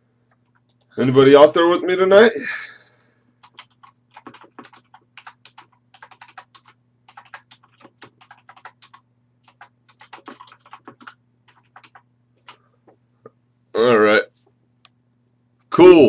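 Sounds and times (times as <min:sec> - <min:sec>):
keyboard typing clicks: 0:03.4 - 0:12.6.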